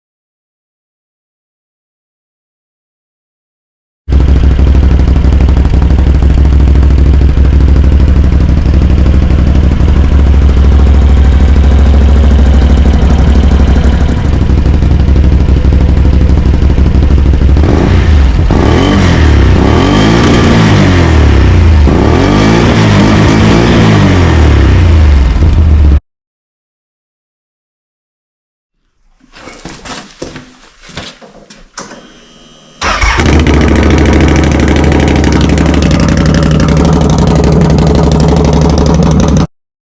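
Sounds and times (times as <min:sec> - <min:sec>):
atv engine idling loudly: 0:04.1 - 0:22.3, 0:32.8 - 0:39.5
engine revving: 0:04.2 - 0:25.8, 0:32.1 - 0:39.5.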